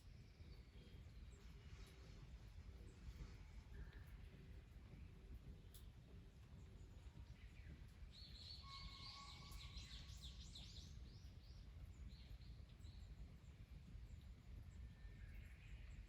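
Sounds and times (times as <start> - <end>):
songbird singing: 6.7 - 13.3.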